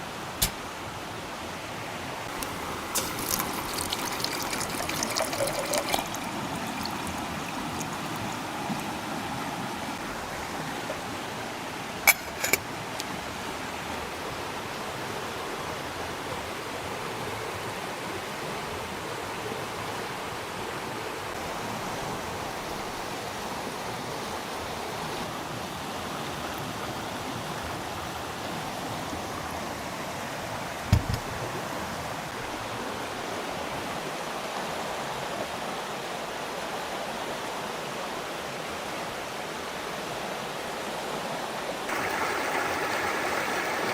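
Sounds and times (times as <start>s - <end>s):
running stream water: 0.0s - 43.9s
short dull knock: 30.9s - 31.2s.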